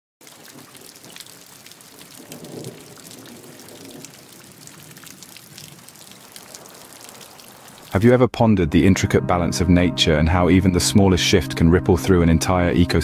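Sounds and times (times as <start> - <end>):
raindrop ticks: 0.2 - 8.0
steady rain: 0.2 - 8.1
low rumble: 8.4 - 13.0.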